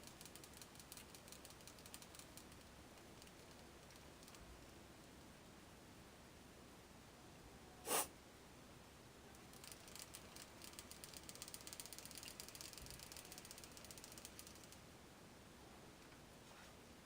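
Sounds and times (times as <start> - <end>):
fine ratcheting clicks: 0.0 - 4.4, 9.5 - 14.8.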